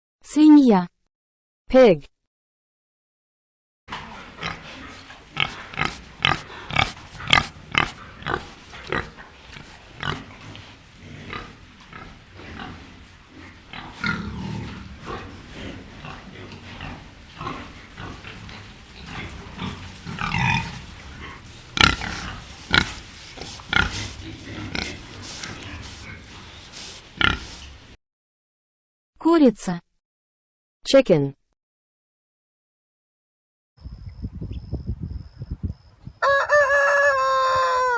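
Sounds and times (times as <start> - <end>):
pig grunting: 3.9 - 27.8
pig high calls: 14.0 - 27.6, 36.2 - 37.9.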